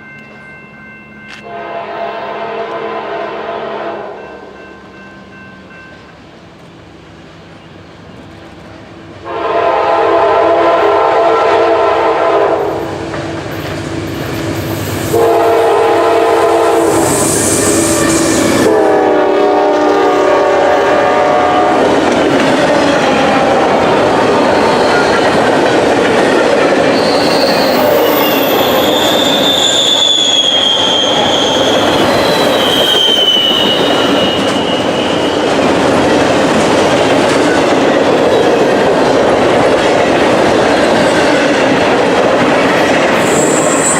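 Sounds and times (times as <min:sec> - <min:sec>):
locomotive air horn blasts: 0:01.4 - 0:04.5, 0:09.2 - 0:12.8, 0:15.1 - 0:21.9.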